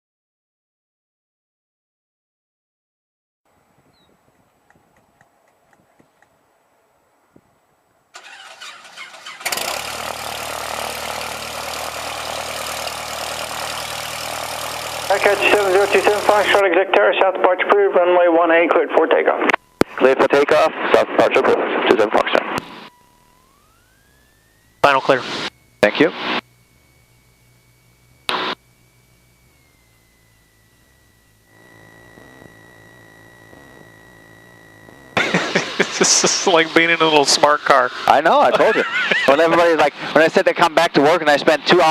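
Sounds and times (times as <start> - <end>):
starter cranking engine: 8.2 - 16.6, 22.6 - 40.2
aircraft engine idling: 8.2 - 41.9
faint electrical whine: 9.7 - 41.9
person talking: 15.1 - 22.6, 24.8 - 26.2, 35.2 - 41.9.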